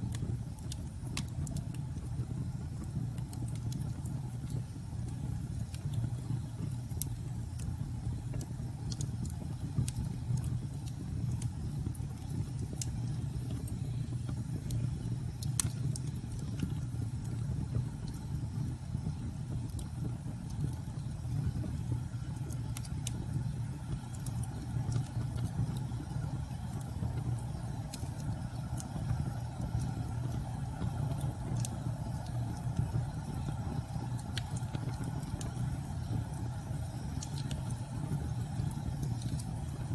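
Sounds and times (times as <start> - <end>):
steady low rumble: 0.0 - 39.9
wood fire crackling and popping: 0.0 - 39.9.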